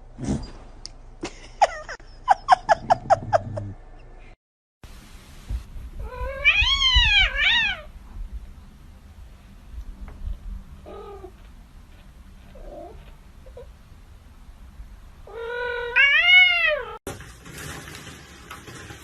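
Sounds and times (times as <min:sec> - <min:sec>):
cat meowing: 0:06.0 - 0:07.9, 0:15.2 - 0:17.0.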